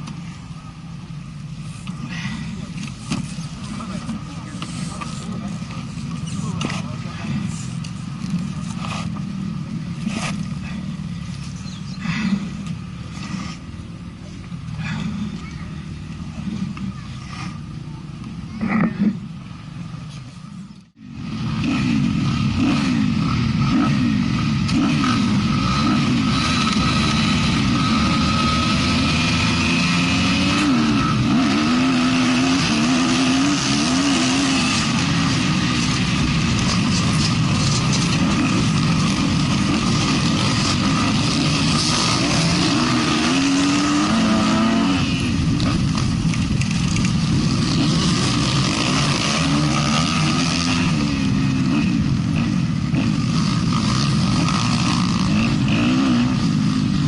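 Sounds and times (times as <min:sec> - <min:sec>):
motocross bike engine revving: 0:21.0 - 0:57.0.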